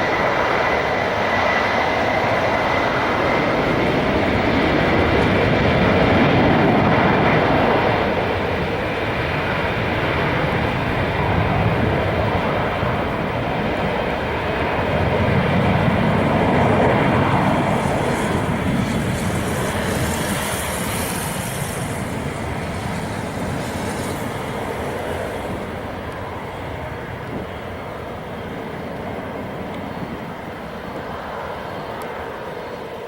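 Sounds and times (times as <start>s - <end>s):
jet engines roaring: 0.0s - 33.0s
high hiss: 17.5s - 25.7s.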